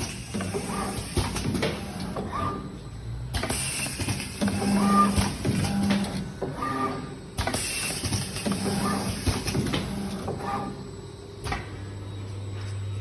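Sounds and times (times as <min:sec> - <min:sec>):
low machine hum: 0:04.0 - 0:13.0.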